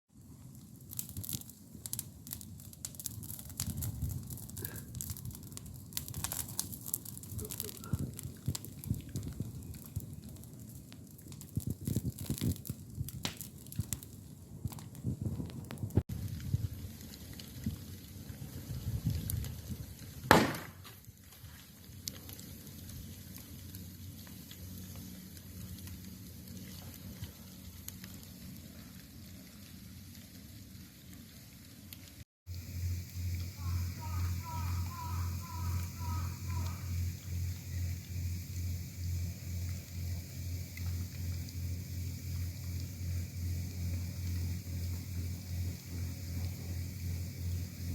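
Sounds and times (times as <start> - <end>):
campfire crackling: 0.1 - 47.9
loud sharp crack: 20.3 - 20.8
low rumble: 32.5 - 47.9.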